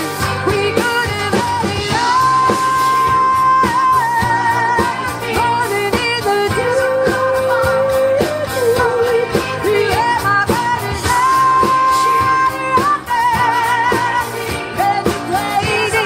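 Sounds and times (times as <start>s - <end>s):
steady drum beat: 0.0s - 16.0s.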